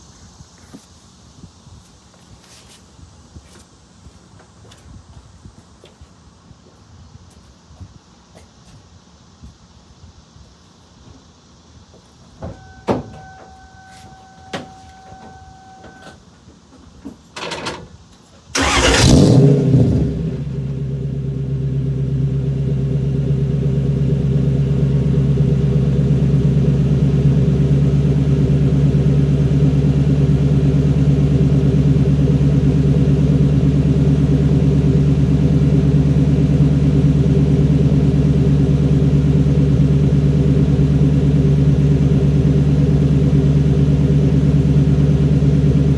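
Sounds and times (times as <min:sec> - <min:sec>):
car engine starting and idling: 0:18.5 - 0:45.9.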